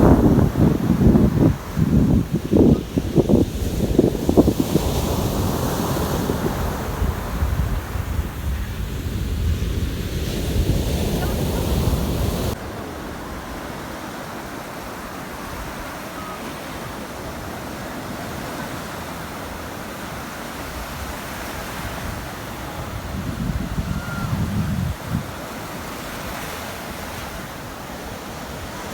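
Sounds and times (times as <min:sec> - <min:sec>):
wind buffeting microphone: 0:00.0 - 0:12.6, 0:20.6 - 0:25.5
sea waves washing in: 0:00.0 - 0:28.9.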